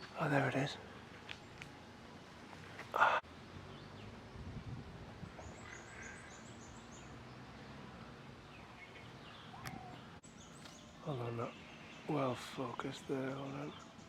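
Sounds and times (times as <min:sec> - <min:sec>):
small birds calling: 0:05.3 - 0:14.0
soft bird chirps: 0:05.3 - 0:14.0.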